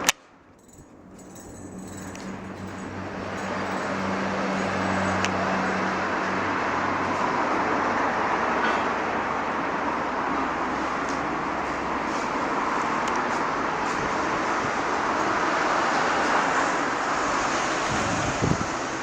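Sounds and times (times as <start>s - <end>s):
tractor diesel engine running: 0.6s - 6.8s.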